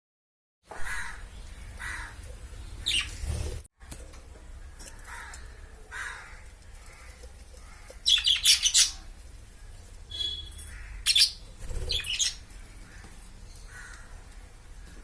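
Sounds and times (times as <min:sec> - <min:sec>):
parrots chirping: 0:01.0 - 0:03.3, 0:04.8 - 0:09.2, 0:09.9 - 0:12.8.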